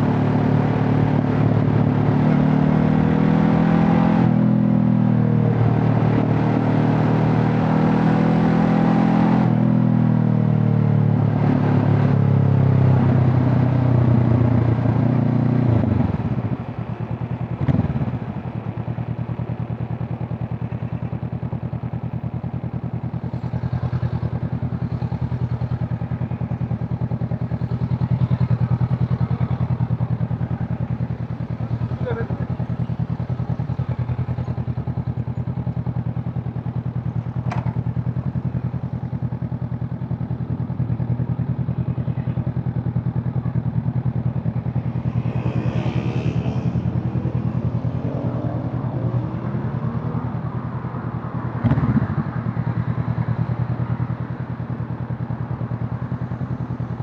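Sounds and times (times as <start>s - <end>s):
motorcycle engine: 0.0s - 57.0s
brief thump: 37.5s - 37.8s.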